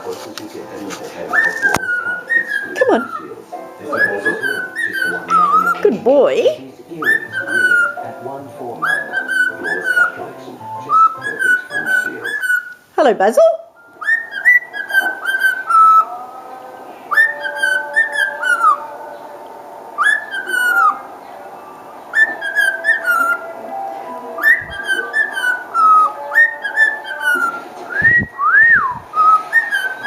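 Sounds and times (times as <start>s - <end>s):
cockatiel whistling a tune: 1.3s - 5.8s, 7.0s - 8.2s, 8.8s - 12.8s, 13.8s - 16.1s, 17.1s - 18.8s, 20.0s - 21.0s, 22.0s - 23.5s, 24.4s - 30.0s.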